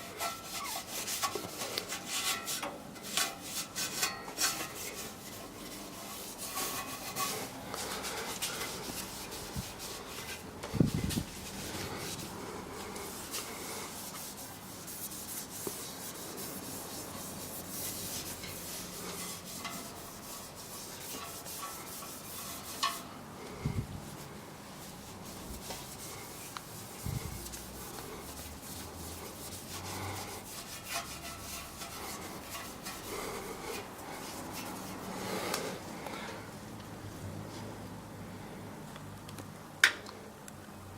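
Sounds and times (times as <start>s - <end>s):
hand scrubbing metal exhaust: 0.0s - 36.3s.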